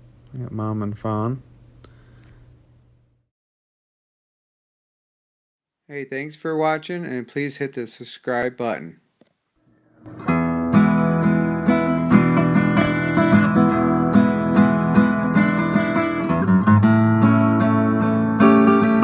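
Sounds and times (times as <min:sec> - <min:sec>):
strummed acoustic guitar: 0:10.0 - 0:19.0.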